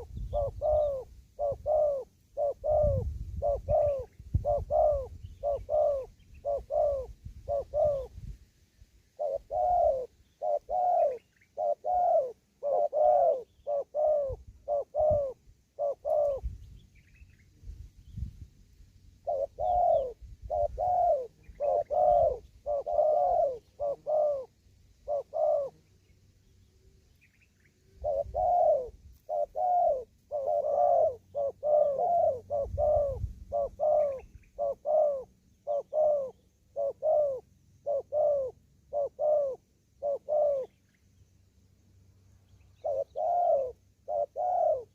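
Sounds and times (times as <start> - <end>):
dove cooing: 0.0 - 8.3, 9.2 - 16.6, 19.2 - 26.0, 27.7 - 40.8, 42.8 - 44.9.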